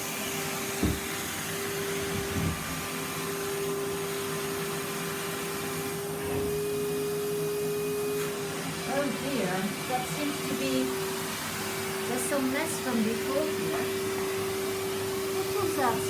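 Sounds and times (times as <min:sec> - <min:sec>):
vacuum cleaner running: 0:00.0 - 0:16.0
nozzle knocking: 0:00.8 - 0:01.2.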